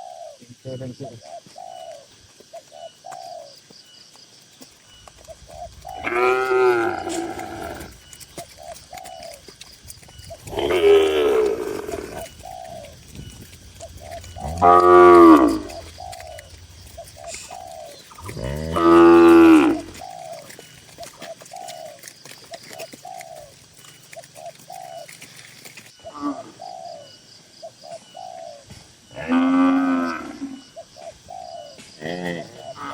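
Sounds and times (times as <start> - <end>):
cattle mooing: 5.5 - 8.1, 10.4 - 20.0.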